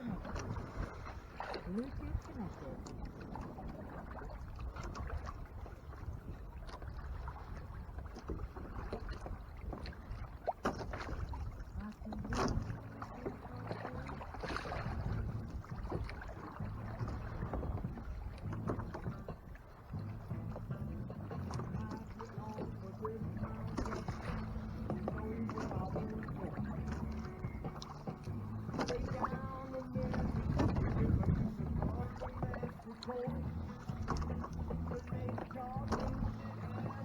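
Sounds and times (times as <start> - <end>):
splashes: 0.0 - 37.0
water lapping against a hull: 0.0 - 37.0.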